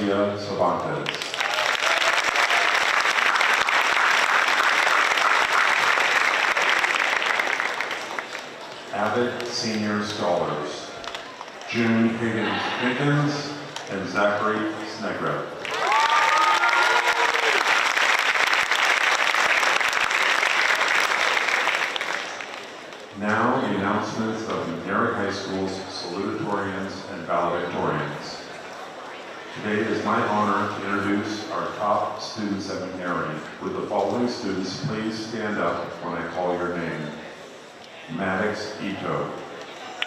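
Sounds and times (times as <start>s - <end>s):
large audience applauding: 1.0s - 9.2s, 15.6s - 22.8s.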